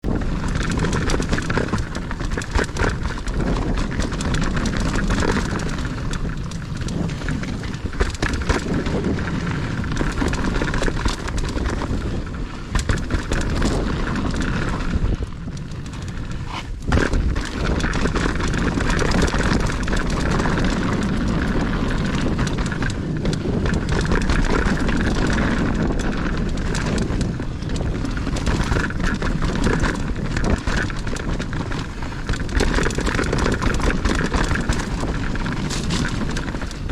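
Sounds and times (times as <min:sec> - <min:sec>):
bike rattling and knocking: 0:00.0 - 0:36.9
wind on microphone: 0:00.0 - 0:36.9
tyres on dirt: 0:00.1 - 0:21.8.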